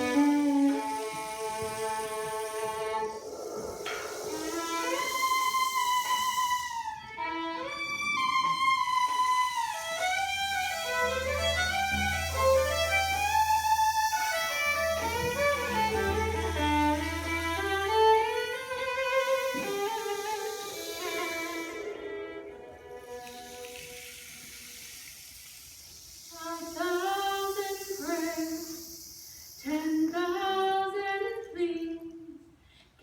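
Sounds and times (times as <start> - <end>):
solo violin melody: 0.0 - 3.2, 4.4 - 24.0
low sustained bass note: 10.1 - 18.5.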